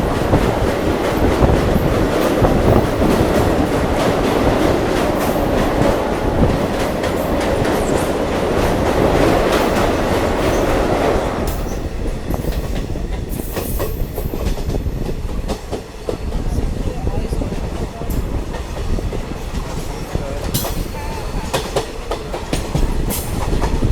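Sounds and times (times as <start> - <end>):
rushing noise: 0.0 - 13.1
train rumbling along track: 0.0 - 23.9
wheels clicking over rail joints: 0.0 - 23.9.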